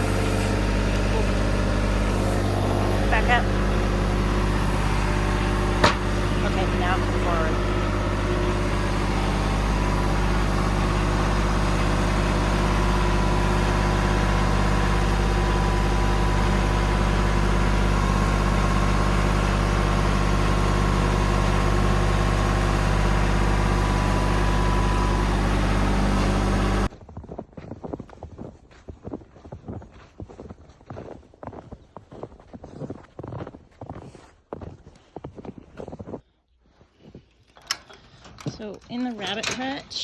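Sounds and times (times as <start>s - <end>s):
motor engine humming: 0.0s - 26.9s.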